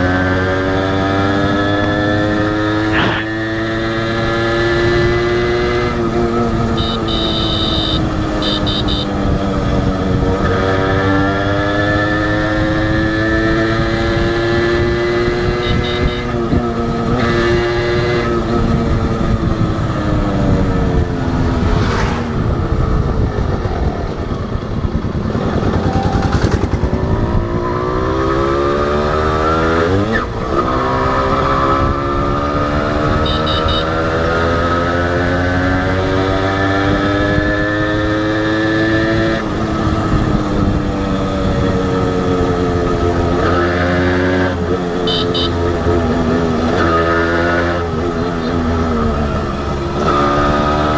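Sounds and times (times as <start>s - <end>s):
two-stroke motorcycle engine: 0.0s - 21.0s, 23.1s - 29.3s, 30.3s - 50.9s.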